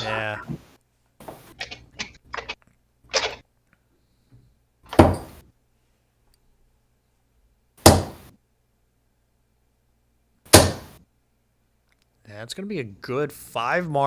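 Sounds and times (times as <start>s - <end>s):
darts thudding into dartboard: 4.9s - 5.4s, 7.8s - 8.3s, 10.5s - 11.0s.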